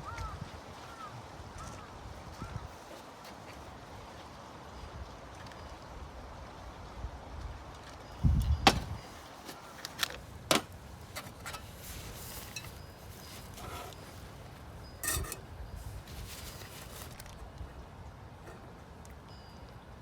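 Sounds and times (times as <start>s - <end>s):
dull thump: 8.6s - 9.0s.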